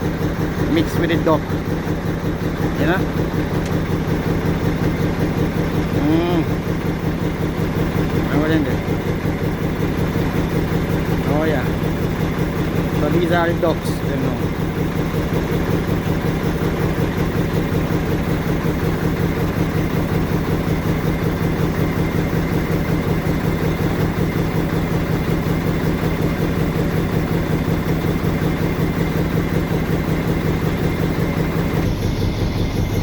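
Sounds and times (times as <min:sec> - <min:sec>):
diesel truck engine idling: 0:00.0 - 0:33.0.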